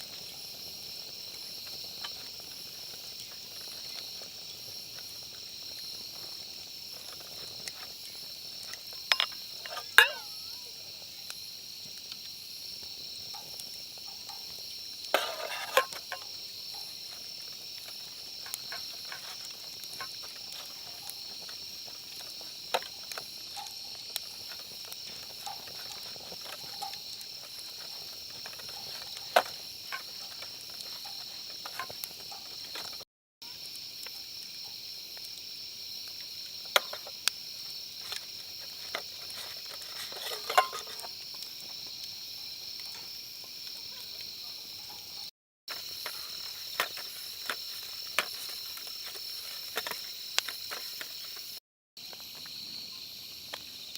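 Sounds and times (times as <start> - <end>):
insects chirring: 0.0 - 53.9.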